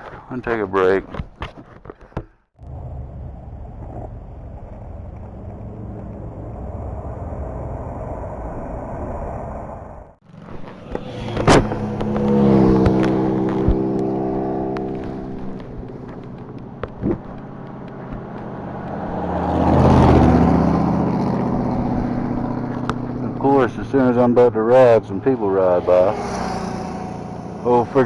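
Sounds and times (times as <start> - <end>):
wind rush: 5.5 - 10.2
motorcycle engine running: 10.2 - 28.0.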